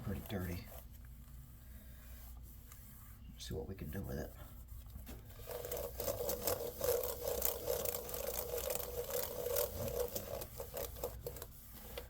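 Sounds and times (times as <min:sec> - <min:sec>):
rag scrubbing keyboard keys: 0:05.4 - 0:12.0.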